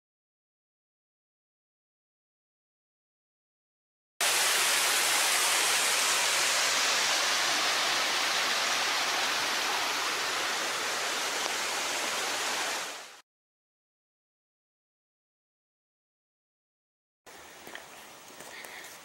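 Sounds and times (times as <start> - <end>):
running water rushing: 4.2 - 13.2.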